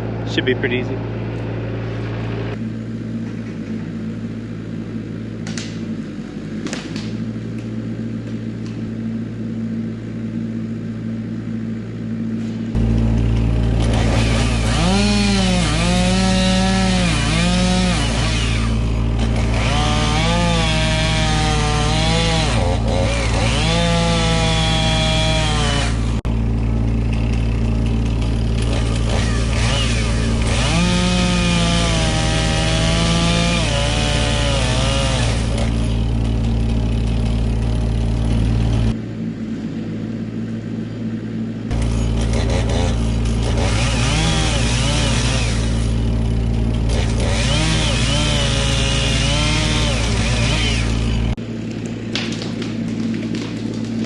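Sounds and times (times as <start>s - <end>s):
machine engine running: 0.0s - 54.0s
chainsaw cutting into tree: 12.8s - 39.0s, 41.7s - 51.4s.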